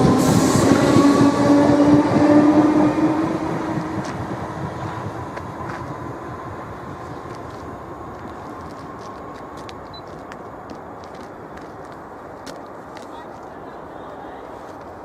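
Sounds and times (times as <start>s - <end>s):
train passing: 0.0s - 15.0s.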